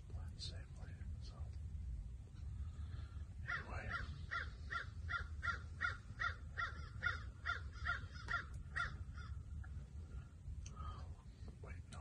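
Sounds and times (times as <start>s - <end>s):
bird calling in short calls: 3.5s - 9.4s.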